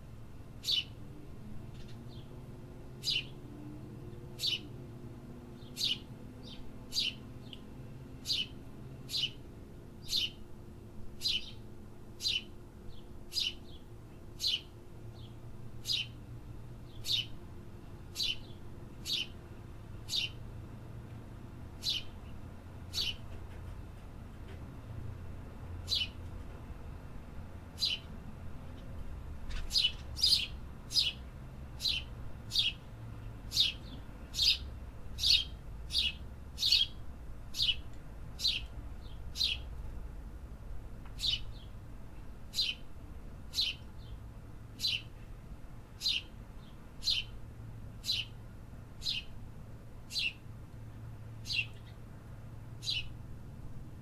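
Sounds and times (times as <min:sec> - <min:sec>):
songbird chirping: 0:00.6 - 0:04.7, 0:05.4 - 0:10.5, 0:11.2 - 0:16.2, 0:16.8 - 0:17.4, 0:18.1 - 0:20.4, 0:21.8 - 0:23.3, 0:25.8 - 0:26.2, 0:27.8 - 0:39.7, 0:41.1 - 0:41.8, 0:42.5 - 0:42.9, 0:43.5 - 0:45.2, 0:46.0 - 0:47.4, 0:48.0 - 0:48.4, 0:49.0 - 0:49.4, 0:50.1 - 0:50.5, 0:51.4 - 0:52.1, 0:52.8 - 0:53.2.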